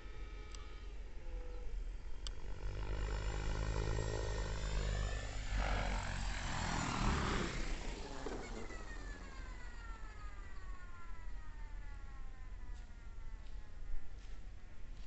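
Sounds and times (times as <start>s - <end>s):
model helicopter engine and rotors: 0.0s - 15.0s
rushing rotor wash: 2.8s - 10.5s.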